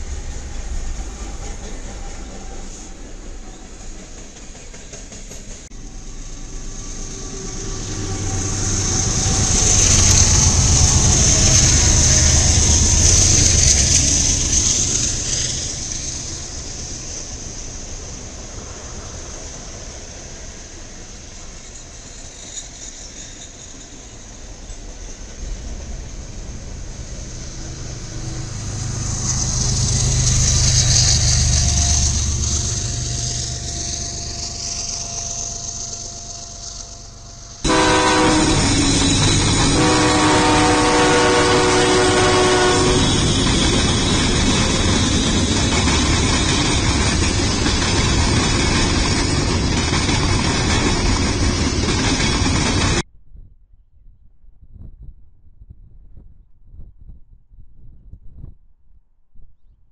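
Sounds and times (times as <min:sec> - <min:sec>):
train wheels rumbling on rails: 0:00.0 - 0:53.1
locomotive horn: 0:06.4 - 0:13.0, 0:37.2 - 0:43.5.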